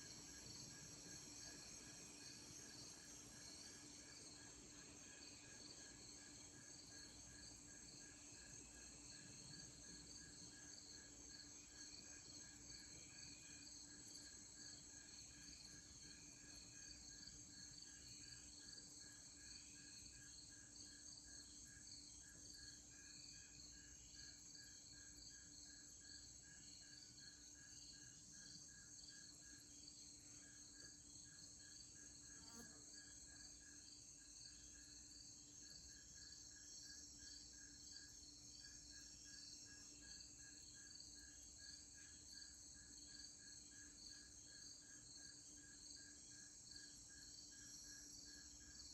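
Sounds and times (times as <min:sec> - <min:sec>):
crickets and night insects trilling: 0:00.0 - 0:48.9.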